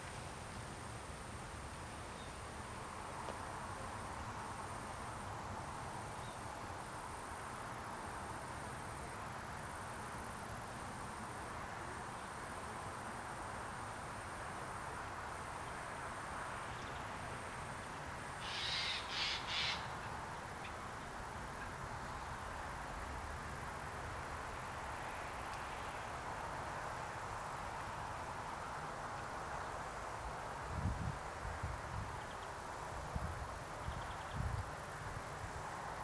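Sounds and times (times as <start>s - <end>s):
open-air background hiss: 0.0s - 36.0s
bird harsh calls: 18.4s - 19.9s.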